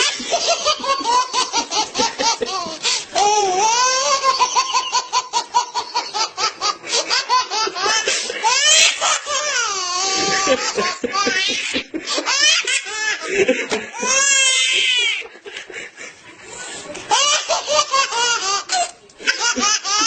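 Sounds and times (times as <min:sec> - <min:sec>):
child laughing: 0:00.0 - 0:15.5, 0:17.1 - 0:20.0.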